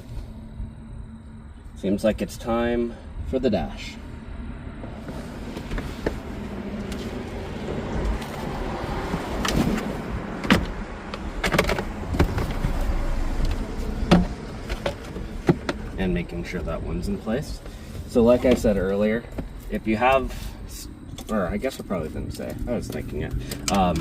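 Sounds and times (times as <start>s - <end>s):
rustling and scraping: 4.8s - 16.0s.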